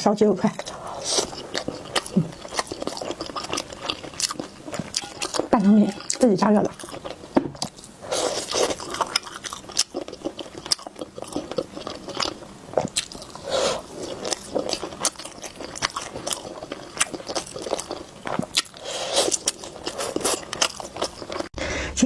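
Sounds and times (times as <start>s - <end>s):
chewing with wet mouth clicks: 0.4s - 21.5s.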